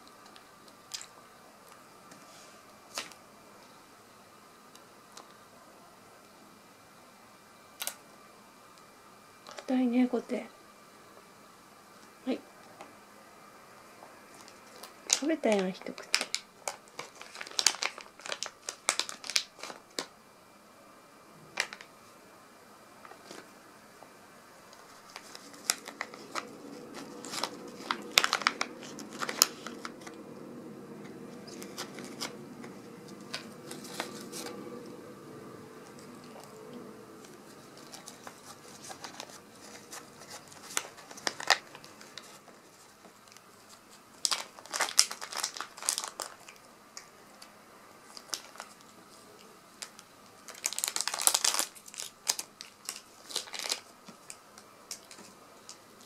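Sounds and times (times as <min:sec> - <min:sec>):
plastic pouch crinkling: 0:14.3 - 0:20.1, 0:21.6 - 0:21.9, 0:24.7 - 0:30.2, 0:31.4 - 0:34.6, 0:37.2 - 0:46.7, 0:48.1 - 0:48.9, 0:49.8 - 0:56.0.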